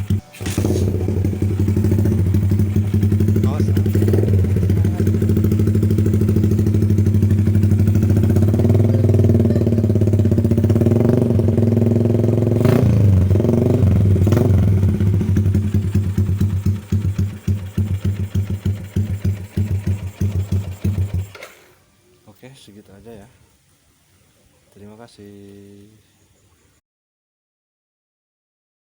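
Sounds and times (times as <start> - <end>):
motorcycle engine idling: 0.0 - 21.8
throttle blips: 7.8 - 11.3.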